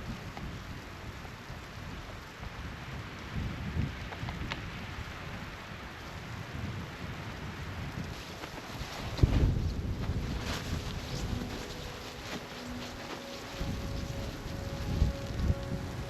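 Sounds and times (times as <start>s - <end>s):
steady hiss: 0.0s - 16.0s
wind rumbling on microphone: 0.0s - 16.0s
faint ticks: 0.2s - 0.5s.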